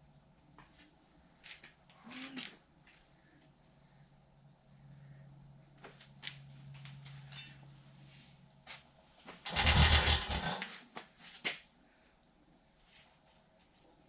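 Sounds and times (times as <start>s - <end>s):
faint low hum: 0.0s - 14.0s
engine clicks and knocks: 9.5s - 10.5s.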